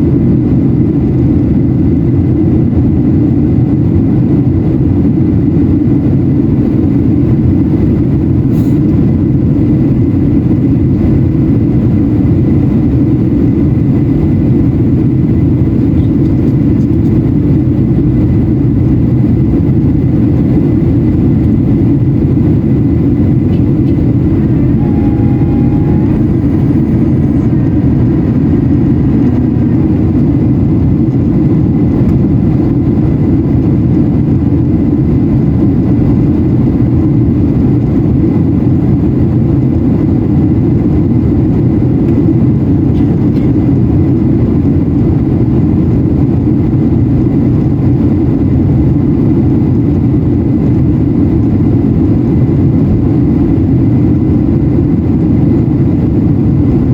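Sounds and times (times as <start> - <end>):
jet engine cabin rumble: 0.0 - 56.9
faint steady tones: 20.7 - 31.5.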